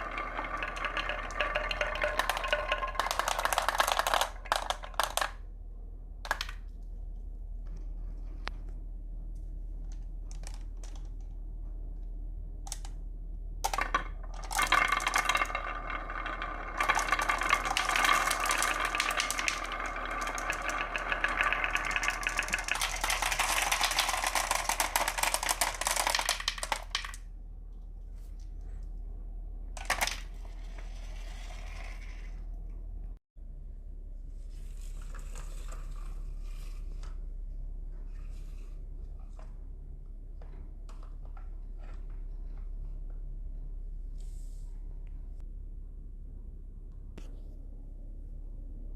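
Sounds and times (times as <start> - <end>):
marbles rattling on wooden track: 0.0 - 5.4, 10.3 - 11.2, 13.6 - 27.2, 29.8 - 32.4.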